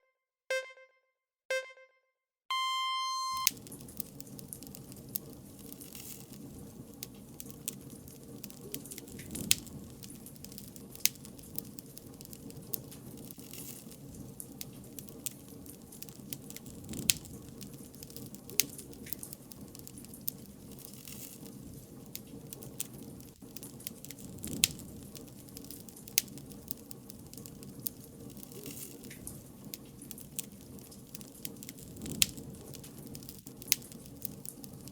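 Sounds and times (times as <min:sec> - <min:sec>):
short electronic tone: 0:00.5 - 0:03.5
campfire crackling and popping: 0:03.4 - 0:34.9.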